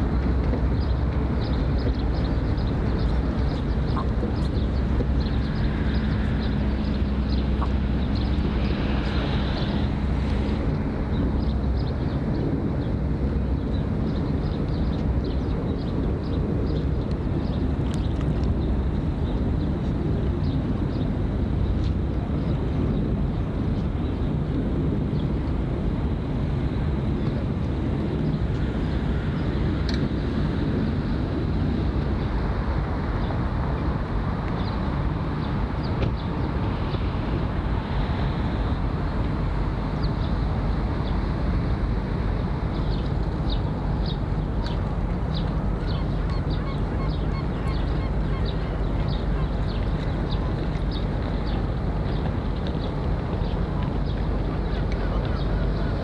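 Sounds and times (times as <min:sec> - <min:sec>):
low engine rumble: 0:28.6 - 0:56.0.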